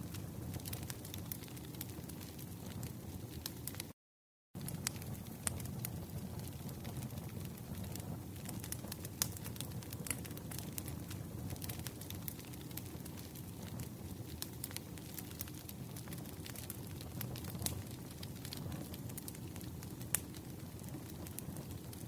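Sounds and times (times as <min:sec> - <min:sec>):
wood fire crackling: 0:00.0 - 0:04.0, 0:04.6 - 0:22.0.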